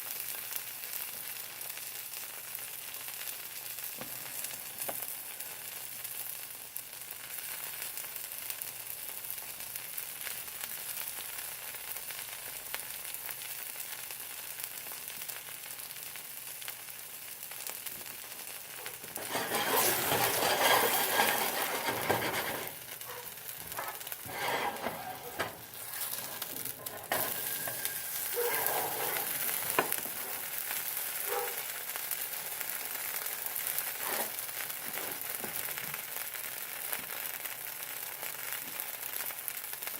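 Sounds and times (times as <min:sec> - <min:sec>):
food sizzling in a pan: 0:00.0 - 0:39.9
knocks and scrapes: 0:18.8 - 0:30.6.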